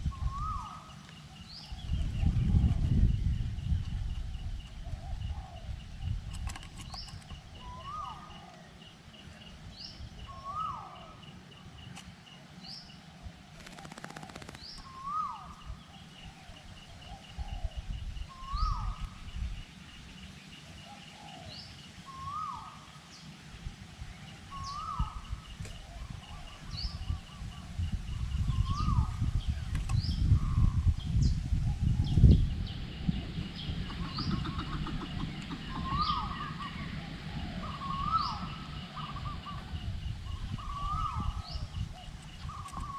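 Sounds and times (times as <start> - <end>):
wind rumble on microphone: 0.0 - 8.5, 14.3 - 42.9
bird fast ticking series: 11.6 - 15.8.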